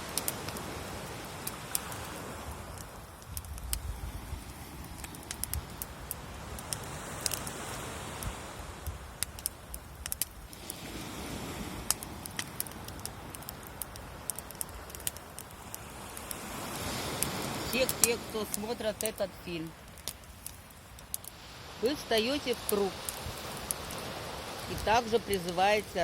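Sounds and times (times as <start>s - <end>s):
bonfire crackling and popping: 0.0s - 26.0s
low steady background noise: 12.0s - 26.0s.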